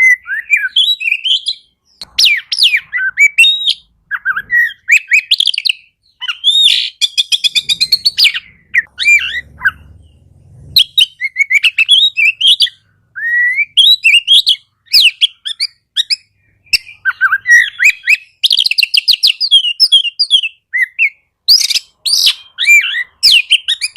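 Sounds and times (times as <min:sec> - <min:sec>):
bird singing whistles and trills: 0:00.0 - 0:23.9.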